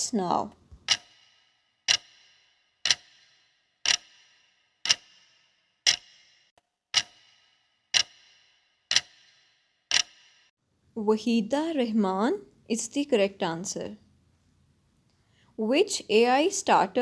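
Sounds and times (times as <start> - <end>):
clock ticking: 0.0 - 10.5.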